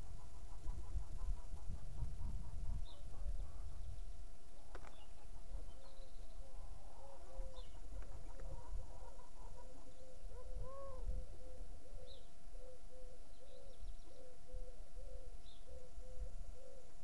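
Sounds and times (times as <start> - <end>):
faint high chirps of small bird: 9.5 - 16.9.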